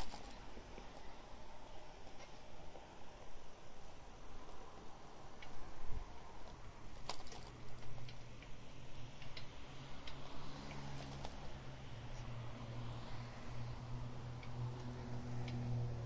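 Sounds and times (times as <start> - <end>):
scattered clicks: 9.2 - 11.4.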